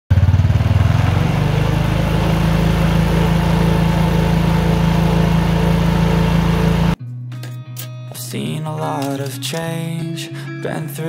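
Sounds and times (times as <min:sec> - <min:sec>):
small motorcycle engine running: 0:00.1 - 0:07.0.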